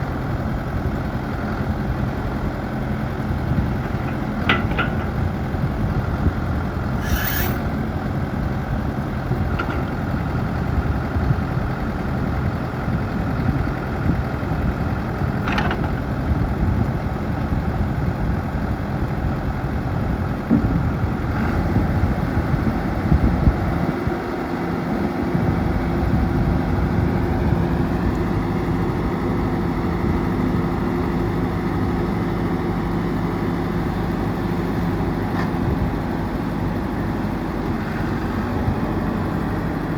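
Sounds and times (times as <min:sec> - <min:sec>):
diesel engine running: 0:00.0 - 0:39.9
brief high squeals: 0:07.0 - 0:07.8.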